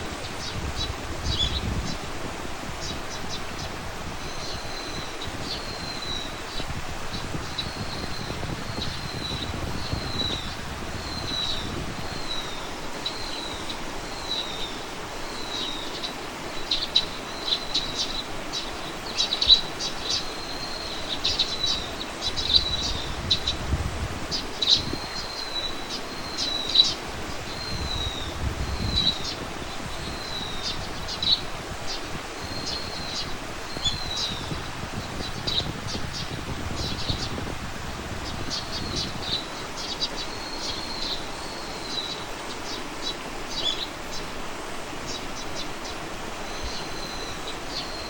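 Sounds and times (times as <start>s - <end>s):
low wind rumble: 0.0s - 48.0s.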